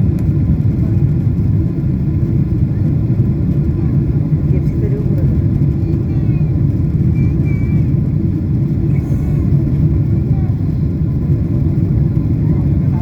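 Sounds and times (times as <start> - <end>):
jet airliner cabin rumble: 0.0 - 13.0.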